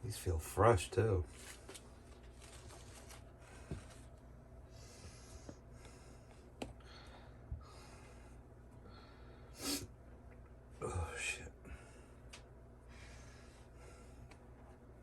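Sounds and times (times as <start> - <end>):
soft rustling: 1.2 - 4.3.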